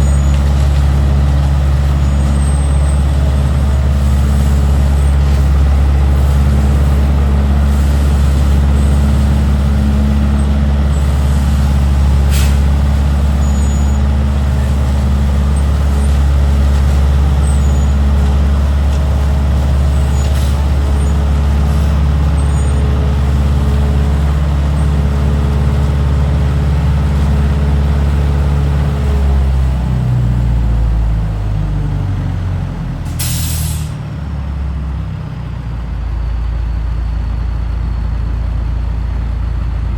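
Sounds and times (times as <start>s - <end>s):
diesel truck engine droning: 0.0s - 39.9s
air brake hiss: 12.3s - 12.7s, 33.1s - 34.0s.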